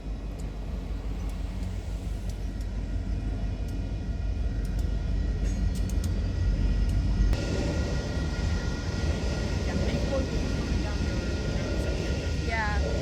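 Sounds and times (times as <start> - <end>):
freight train rumbling: 0.0 - 13.0.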